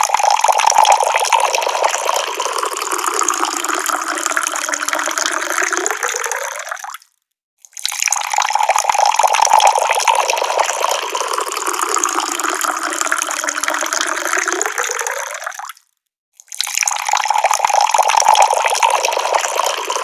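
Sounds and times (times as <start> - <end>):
tap water pouring: 0.0 - 7.1, 7.7 - 15.8, 16.4 - 20.0.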